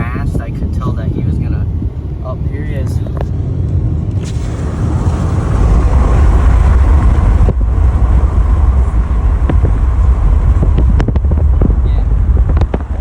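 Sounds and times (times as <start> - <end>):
road rumble: 0.0 - 13.0
wind buffeting: 0.0 - 13.0.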